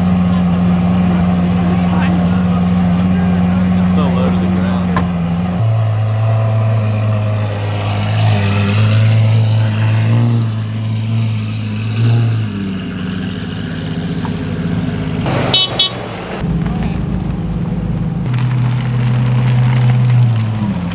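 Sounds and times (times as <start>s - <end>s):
car engine rumbling: 0.0s - 20.9s.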